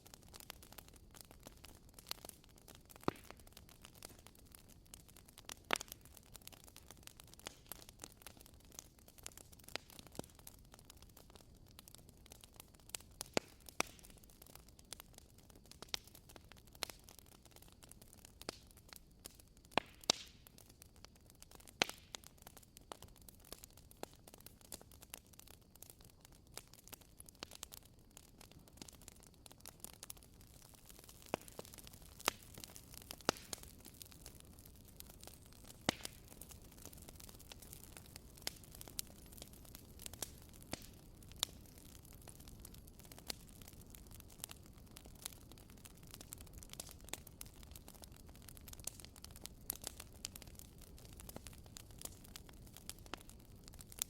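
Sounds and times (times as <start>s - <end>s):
faint steady hiss: 0.0s - 54.0s
wood fire crackling: 0.0s - 54.0s.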